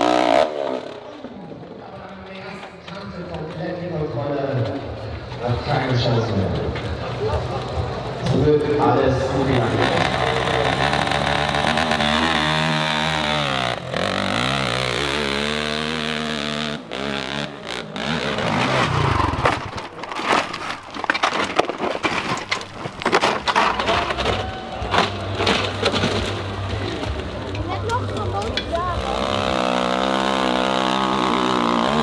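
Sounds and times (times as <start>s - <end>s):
dirt bike engine revving: 0.0s - 1.4s, 7.8s - 32.0s.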